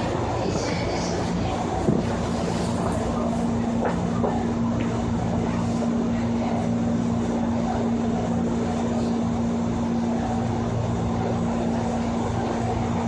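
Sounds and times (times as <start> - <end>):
constant motor hum: 0.0 - 13.0.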